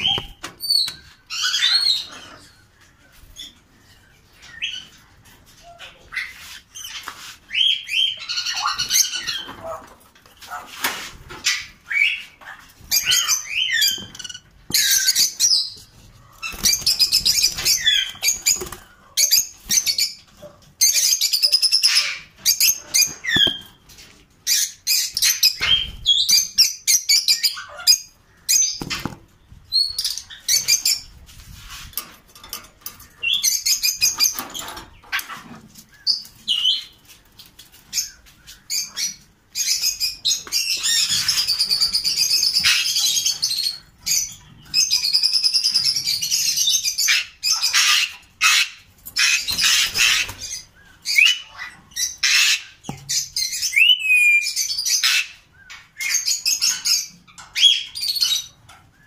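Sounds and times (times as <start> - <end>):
small birds chirping: 0.0 - 59.0
wings fluttering: 16.0 - 19.0.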